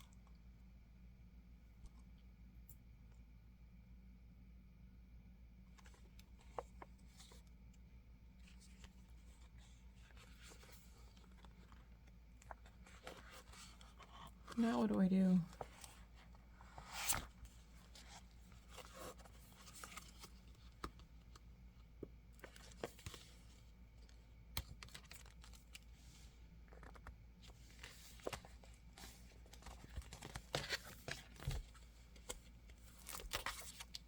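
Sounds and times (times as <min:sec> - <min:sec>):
plastic cover rustling and clicking: 0:26.7 - 0:34.0.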